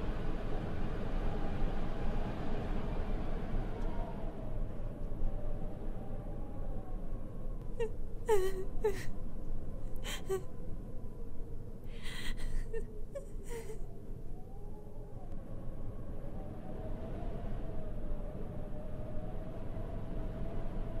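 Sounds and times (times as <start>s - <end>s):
low steady background rumble: 0.0s - 21.0s
girl crying and sniffling: 7.8s - 9.1s, 10.0s - 10.4s, 11.9s - 13.8s.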